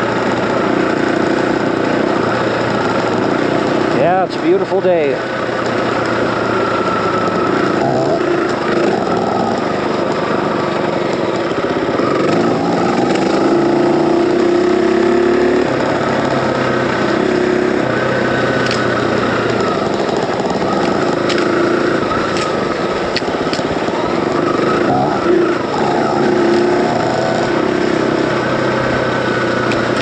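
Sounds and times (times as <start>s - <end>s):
dirt bike engine running: 0.0s - 30.0s
sharp ticks: 18.3s - 23.9s.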